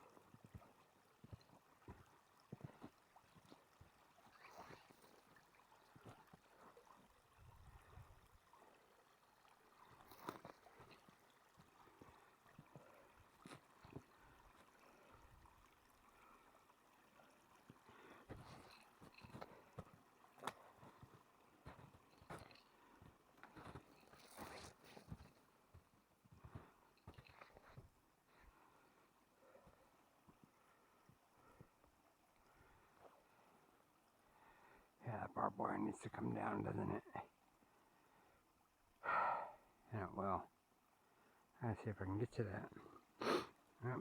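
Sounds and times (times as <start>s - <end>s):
footsteps crunching on icy snow: 23.4s - 25.4s.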